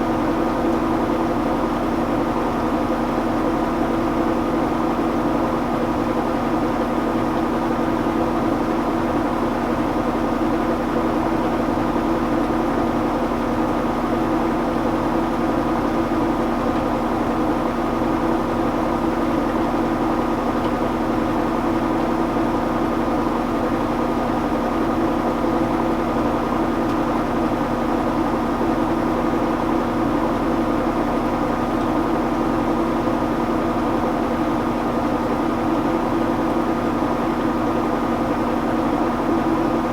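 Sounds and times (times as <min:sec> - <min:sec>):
washing machine spinning: 0:00.1 - 0:39.9.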